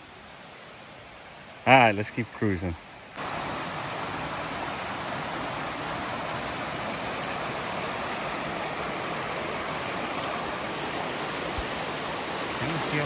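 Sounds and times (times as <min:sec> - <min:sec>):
creek rushing over rocks: 0:03.2 - 0:13.0.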